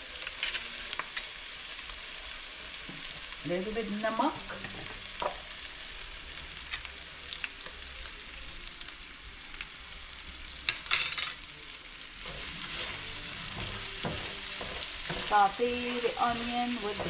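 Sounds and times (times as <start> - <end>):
onion sizzling in hot oil: 0.0 - 17.0
utensil scraping a pan: 12.2 - 17.0.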